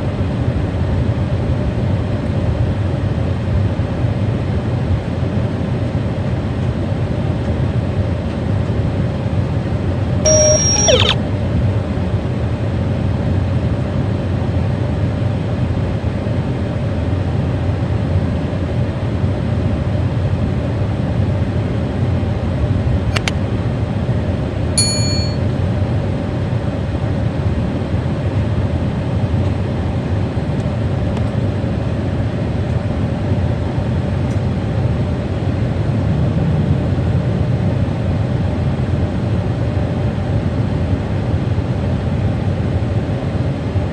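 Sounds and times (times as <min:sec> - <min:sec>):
high squeal: 0:10.3 - 0:11.2
short high ding: 0:24.8 - 0:25.4.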